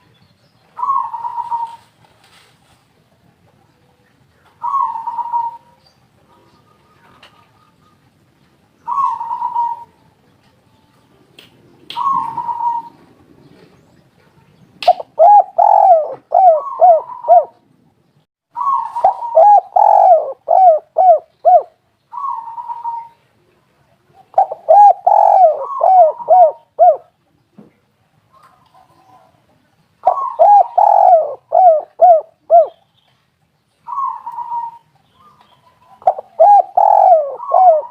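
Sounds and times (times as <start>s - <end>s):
doves cooing: 0.8s - 2.0s, 4.5s - 8.1s, 8.8s - 10.0s, 11.7s - 14.0s, 14.9s - 17.7s, 18.6s - 23.3s, 24.1s - 27.2s, 30.0s - 32.8s, 33.9s - 37.9s.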